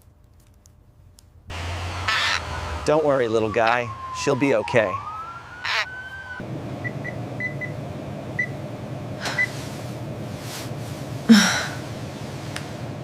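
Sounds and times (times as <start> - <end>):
low room hum: 4.4 - 13.0.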